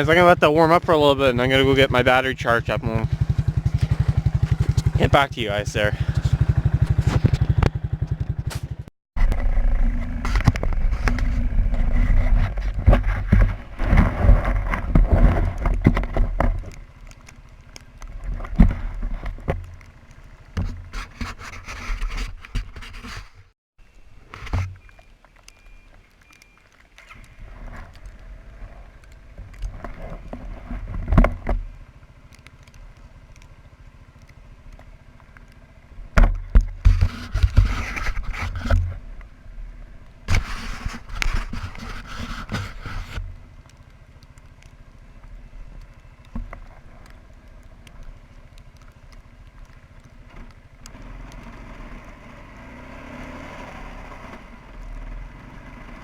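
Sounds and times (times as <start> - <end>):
atv engine idling: 0.0 - 12.2, 16.0 - 19.0, 19.6 - 21.0, 27.1 - 37.2, 42.6 - 56.0.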